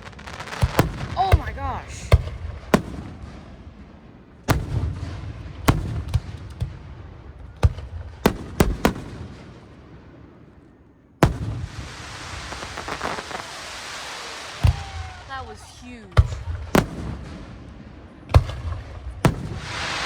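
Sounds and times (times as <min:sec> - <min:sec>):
fireworks booming: 0:00.0 - 0:20.0
steady hiss: 0:11.6 - 0:14.6, 0:19.4 - 0:20.0.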